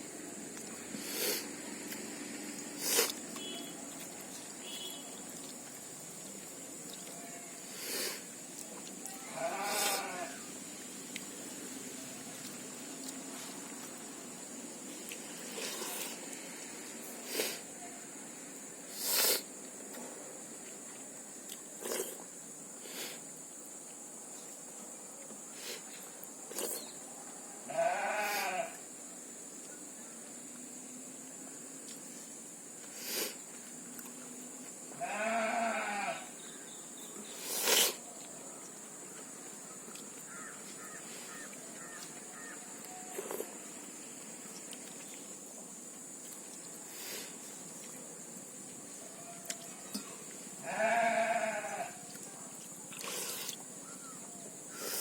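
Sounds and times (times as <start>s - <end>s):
high hiss: 0.0s - 6.7s, 7.5s - 8.6s, 9.2s - 23.6s, 25.4s - 27.0s, 27.7s - 29.6s, 30.4s - 38.1s, 40.3s - 49.0s, 52.9s - 55.0s
person slurping food: 2.8s - 3.2s, 15.4s - 16.2s, 18.9s - 19.5s, 21.8s - 22.2s, 26.5s - 26.8s, 37.4s - 38.0s, 53.0s - 53.6s, 54.8s - 55.0s
goat bleating: 9.2s - 10.4s, 27.7s - 28.7s, 35.0s - 36.2s, 50.6s - 52.0s.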